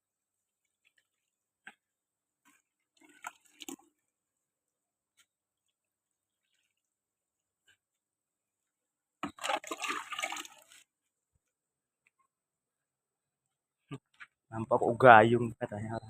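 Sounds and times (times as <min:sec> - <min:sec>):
water dripping and splashing: 0:02.4 - 0:04.0, 0:09.2 - 0:10.9.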